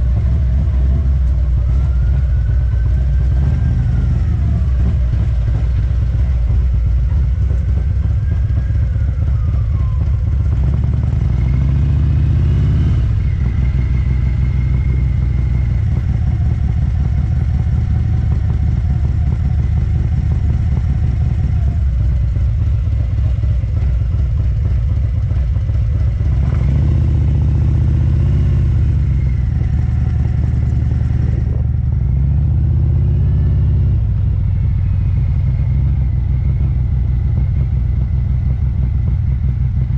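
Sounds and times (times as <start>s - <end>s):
motorcycle exhaust rumble: 0.0s - 39.9s
wind noise: 28.9s - 32.2s.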